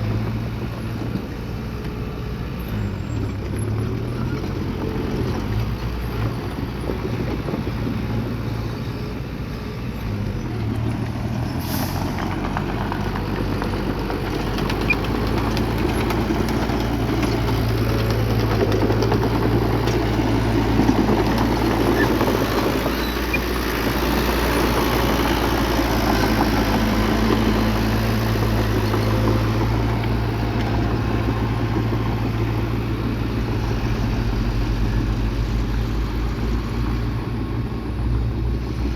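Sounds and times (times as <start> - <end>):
bulldozer diesel engine droning: 0.0 - 38.9.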